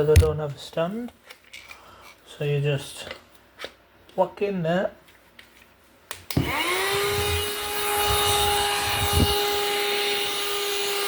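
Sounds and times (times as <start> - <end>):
vacuum motor whine: 6.3 - 11.0.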